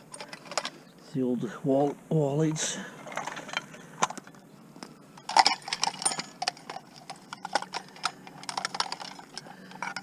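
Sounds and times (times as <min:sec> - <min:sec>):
metal lamp fixtures clinking: 0:05.2 - 0:10.0.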